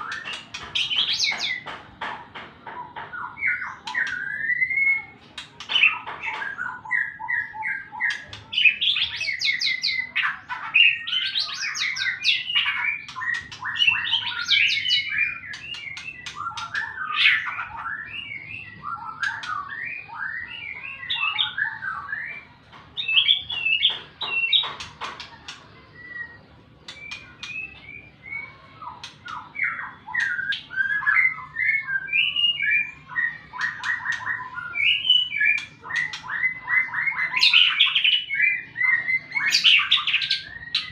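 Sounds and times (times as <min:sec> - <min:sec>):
bird singing whistled phrases: 0:03.3 - 0:05.2, 0:11.0 - 0:23.8, 0:26.0 - 0:40.9
sharp bird clicks: 0:26.9 - 0:27.7.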